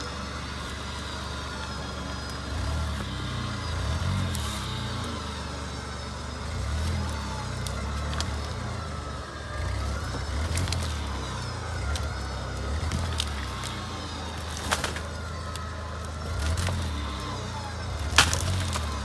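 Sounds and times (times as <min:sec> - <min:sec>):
car engine rumbling: 0:00.0 - 0:19.0
sharp cracks and clicks: 0:18.0 - 0:19.0.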